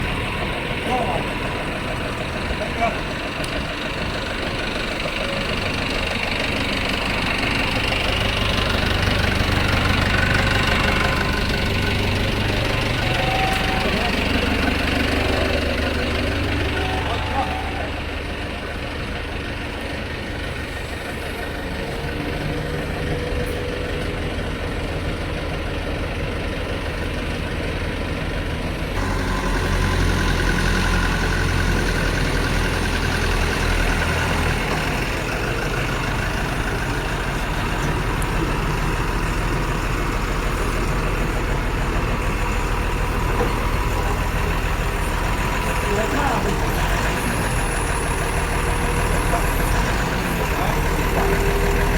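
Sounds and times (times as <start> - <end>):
heavy diesel engine idling: 0.0 - 51.9.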